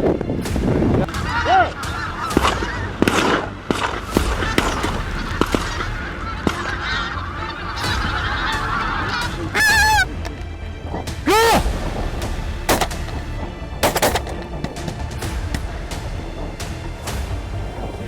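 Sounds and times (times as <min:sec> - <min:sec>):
geese honking: 0:01.1 - 0:10.4, 0:11.2 - 0:11.7, 0:12.6 - 0:15.1.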